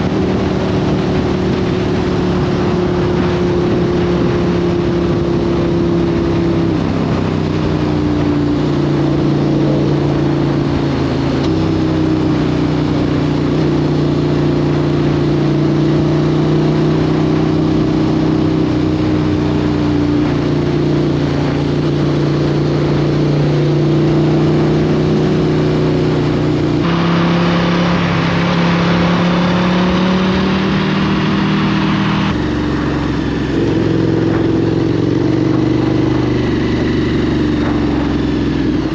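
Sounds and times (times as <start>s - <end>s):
wind rush: 0.0s - 12.3s, 26.1s - 38.9s
motorcycle engine running: 0.0s - 38.9s.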